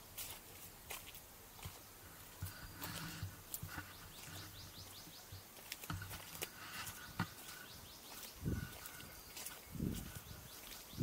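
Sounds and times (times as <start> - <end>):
faint bird chirping: 1.5 - 11.0.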